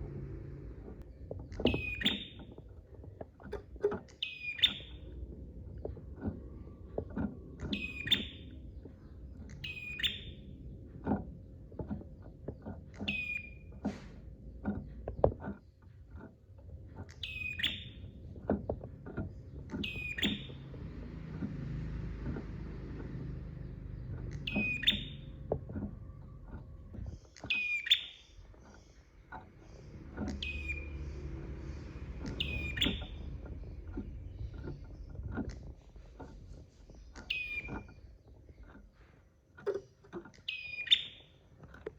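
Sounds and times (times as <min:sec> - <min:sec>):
low knocks and taps: 0:00.0 - 0:27.8, 0:28.4 - 0:40.8
songbird calling: 0:01.5 - 0:02.6, 0:04.0 - 0:05.2, 0:07.6 - 0:10.6, 0:12.9 - 0:13.8, 0:17.1 - 0:18.2, 0:19.3 - 0:21.6, 0:22.2 - 0:39.2, 0:39.8 - 0:41.7.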